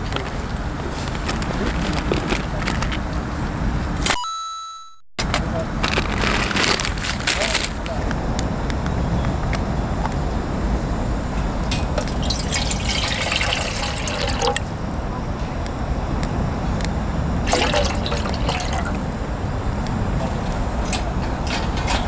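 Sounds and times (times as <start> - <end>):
water pouring and splashing: 11.8 - 14.7, 17.4 - 19.2.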